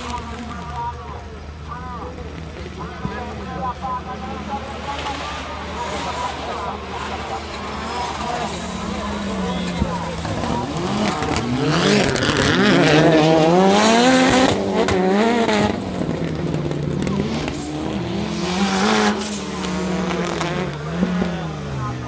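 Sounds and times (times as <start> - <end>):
car engine revving hard: 4.9 - 22.0.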